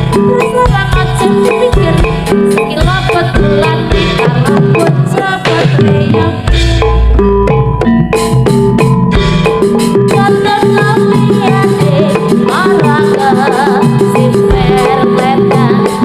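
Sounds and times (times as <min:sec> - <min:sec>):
percussion ensemble playing fast rhythm: 0:00.0 - 0:16.0
deep bass note: 0:06.5 - 0:09.4.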